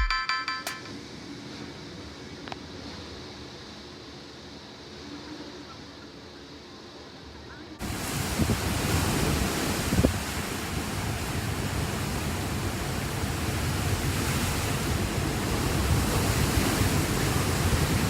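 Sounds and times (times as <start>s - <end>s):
strong wind blowing: 7.8s - 18.0s
wind gusts rumbling on microphone: 7.8s - 18.0s.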